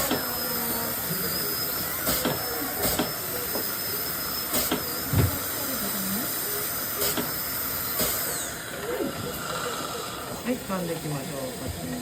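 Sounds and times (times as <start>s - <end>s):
dental equipment hissing: 0.0s - 8.6s.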